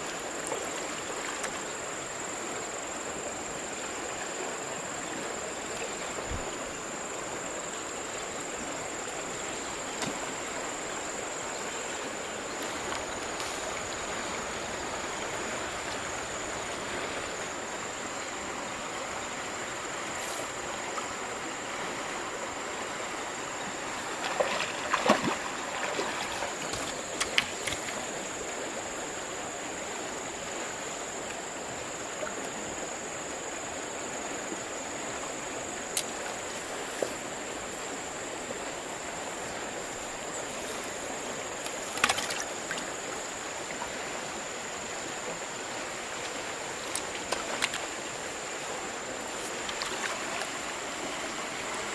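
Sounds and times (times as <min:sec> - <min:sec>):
water splashes: 0:00.0 - 0:02.0, 0:03.5 - 0:17.3, 0:23.7 - 0:29.1, 0:34.4 - 0:51.9
river water flowing: 0:00.0 - 0:51.9.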